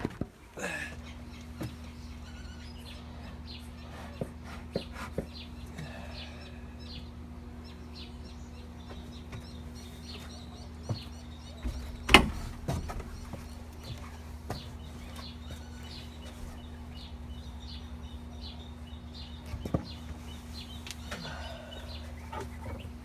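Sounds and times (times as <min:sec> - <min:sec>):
small birds chirping: 0:00.0 - 0:23.0
steady low hum: 0:00.0 - 0:23.0
wooden boxes knocking: 0:10.9 - 0:17.8.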